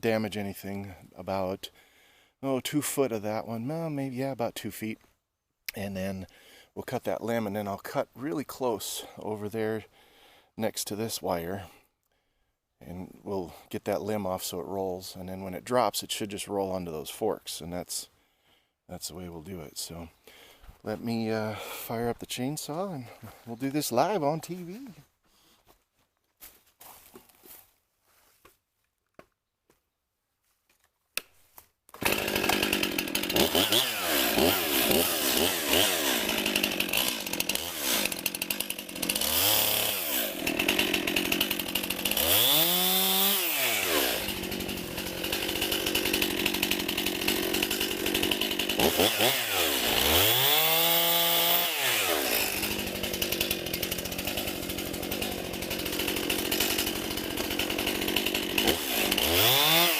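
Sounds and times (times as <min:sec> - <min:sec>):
chainsaw revving: 0:32.0 - 0:59.9.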